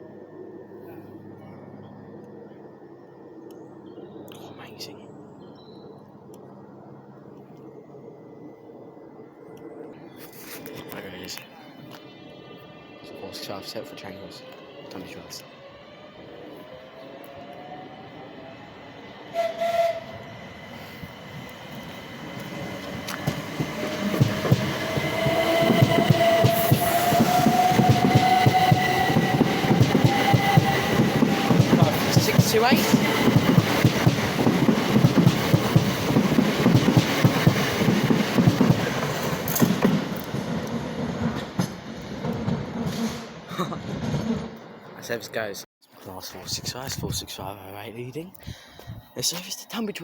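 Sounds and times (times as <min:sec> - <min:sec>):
train rumble: 0:06.0 - 0:47.9
train horn blast: 0:19.3 - 0:20.2.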